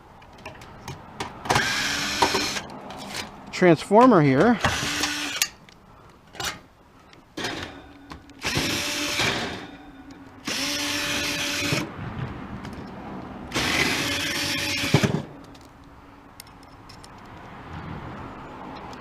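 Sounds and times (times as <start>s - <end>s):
cordless drill motor whine: 10.4s - 11.8s.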